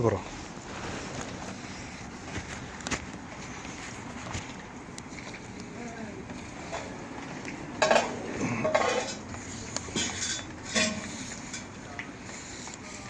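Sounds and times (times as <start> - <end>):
metal basket clanking and scraping: 7.8 - 11.8.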